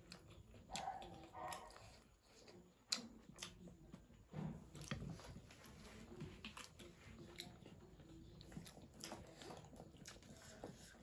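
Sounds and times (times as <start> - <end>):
low room noise: 0.0 - 11.0
soft chewing: 0.0 - 11.0.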